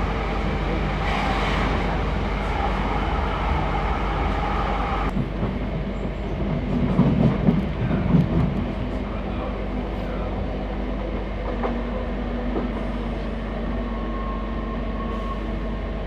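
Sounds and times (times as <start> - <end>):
train rumbling on track: 0.0 - 16.0.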